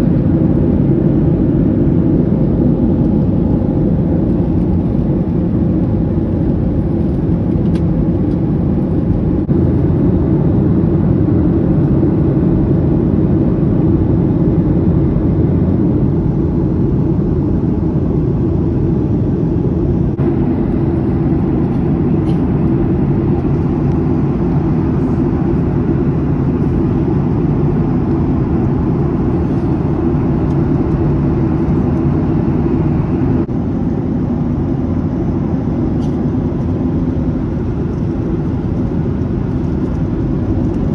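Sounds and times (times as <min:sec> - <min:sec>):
jet engines droning in cabin: 0:00.0 - 0:40.9
faint hum: 0:13.4 - 0:40.9.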